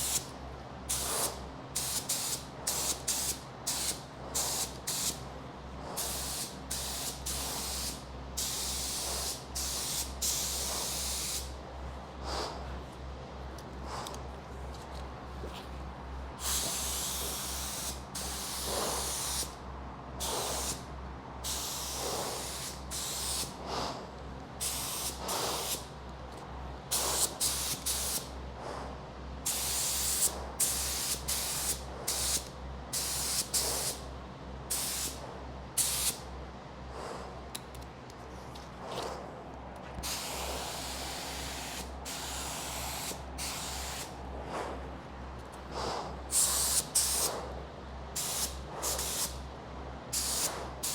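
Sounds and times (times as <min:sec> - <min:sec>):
steady low hum: 0:00.0 - 0:50.9
spray gun hissing: 0:00.9 - 0:05.2, 0:06.0 - 0:11.5, 0:16.4 - 0:19.5, 0:20.2 - 0:20.8, 0:21.4 - 0:23.8, 0:24.6 - 0:25.8, 0:26.9 - 0:28.3, 0:29.5 - 0:32.4, 0:33.0 - 0:34.0, 0:34.7 - 0:35.2, 0:35.8 - 0:36.2, 0:40.0 - 0:44.2, 0:45.8 - 0:47.4, 0:48.2 - 0:49.4, 0:50.2 - 0:50.9.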